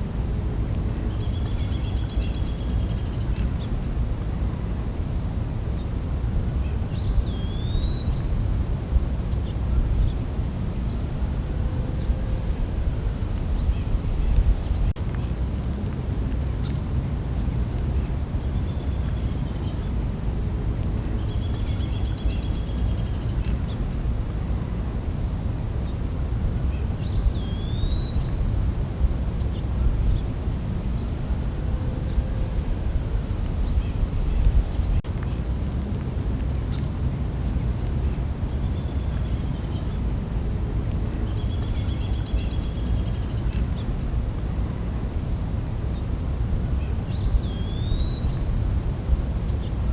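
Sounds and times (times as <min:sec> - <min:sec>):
cricket chirps: 0:00.0 - 0:49.9.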